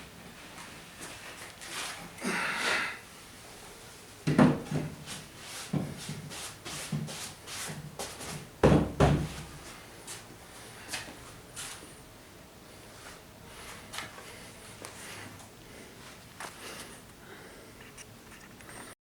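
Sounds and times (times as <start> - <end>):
wooden chair knocking: 4.3 - 5.0, 8.6 - 9.4.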